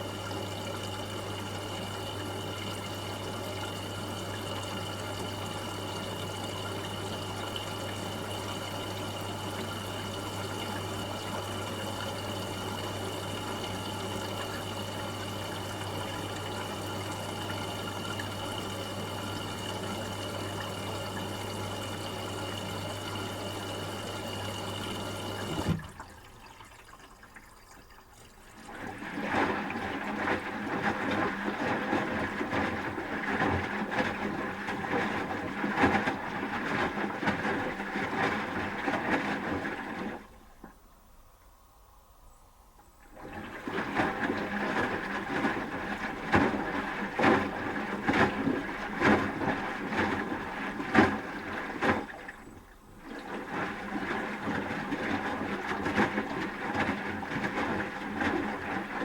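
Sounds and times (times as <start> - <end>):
electrical hum: 0.0 - 30.0
water rushing through washing machine: 0.0 - 41.0, 43.0 - 59.0
uneven sloshing: 43.1 - 59.0.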